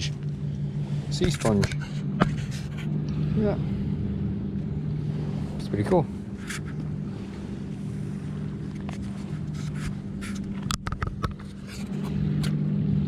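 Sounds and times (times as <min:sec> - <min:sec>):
motorboat engine droning: 0:00.0 - 0:13.0
short clicks and scrapes: 0:06.4 - 0:06.8, 0:08.8 - 0:12.6.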